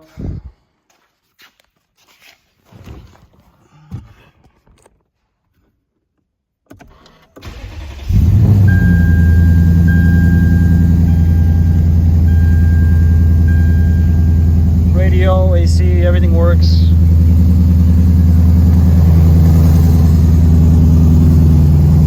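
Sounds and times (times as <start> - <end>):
car engine cranking and starting: 6.7 - 22.0
loud engine idling: 8.1 - 22.0.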